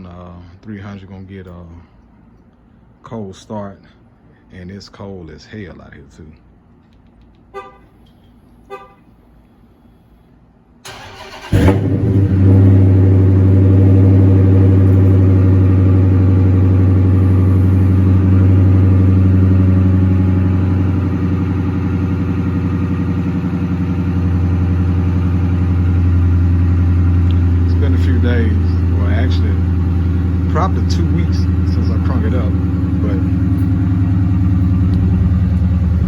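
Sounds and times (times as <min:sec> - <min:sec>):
loud car engine idling: 0:10.9 - 0:36.0.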